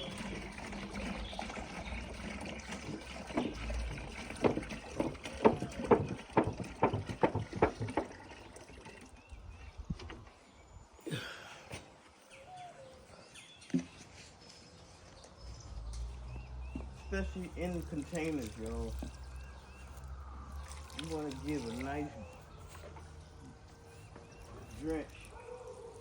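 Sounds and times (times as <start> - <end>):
liquid trickling and splashing: 0.0 - 10.6, 16.0 - 26.0
sharp knocks: 4.4 - 8.2.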